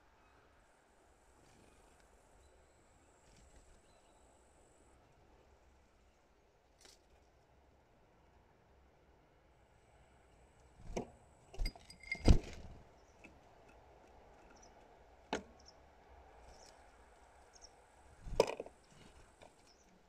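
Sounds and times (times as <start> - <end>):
bird knocking and tapping: 18.3 - 18.8.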